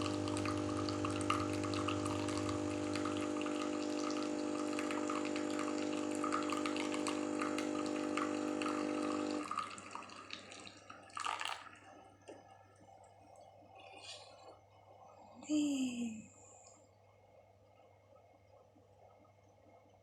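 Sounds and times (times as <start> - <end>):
espresso machine pump humming: 0.0 - 12.0.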